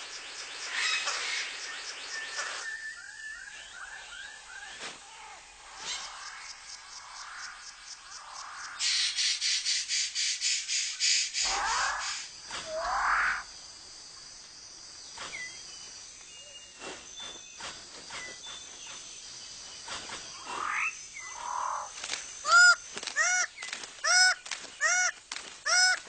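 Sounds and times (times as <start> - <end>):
high insect drone: 0.0 - 26.0
repeated harsh bird calls: 8.4 - 13.6, 20.1 - 26.0
birds calling: 15.0 - 26.0.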